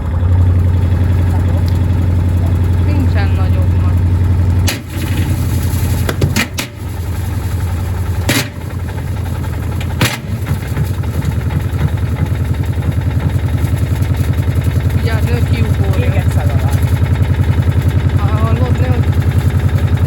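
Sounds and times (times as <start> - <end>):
washing machine rhythmic pulsing: 0.0 - 20.0.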